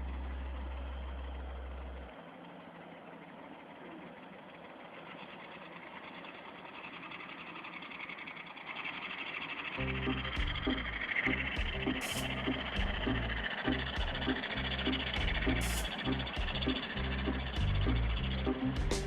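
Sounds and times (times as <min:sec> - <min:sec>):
low steady hum: 0:00.0 - 0:04.5, 0:09.8 - 0:19.0
truck engine running: 0:00.0 - 0:19.0.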